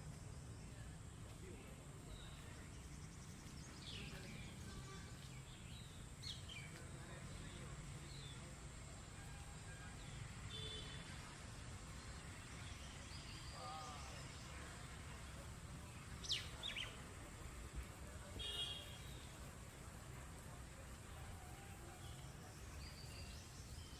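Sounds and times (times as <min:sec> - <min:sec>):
birds chirping: 0:00.0 - 0:08.5, 0:11.9 - 0:19.6, 0:22.0 - 0:23.9.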